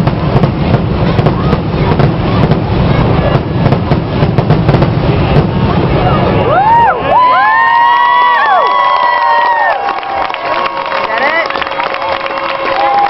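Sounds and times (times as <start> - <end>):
fireworks booms and crackling: 0.0 - 8.2
person whooping: 6.4 - 10.3.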